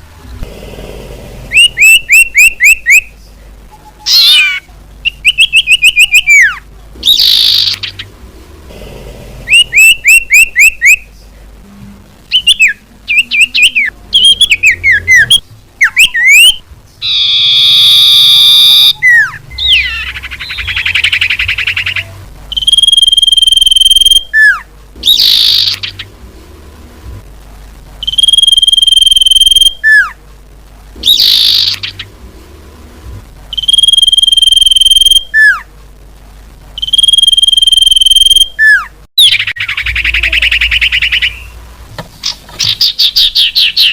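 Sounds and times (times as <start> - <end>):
buzzy bird call: 1.5 - 3.1, 3.8 - 8.1, 9.5 - 11.2, 12.3 - 26.2, 31.0 - 32.2, 36.8 - 41.6
falling bird chirps: 4.1 - 8.1, 12.3 - 26.2, 31.0 - 32.2, 38.6 - 41.6, 42.2 - 43.9
long high bird whistle: 12.4 - 19.9.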